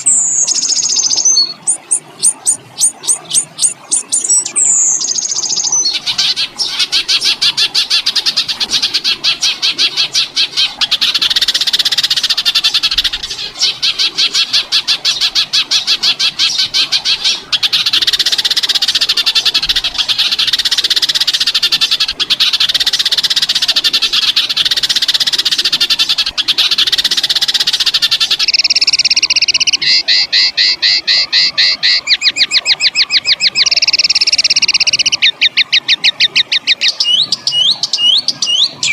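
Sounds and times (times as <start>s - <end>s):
songbird rattling trill: 0.0s - 9.6s, 16.5s - 38.9s
bird two-pitch fast trill: 28.4s - 38.9s.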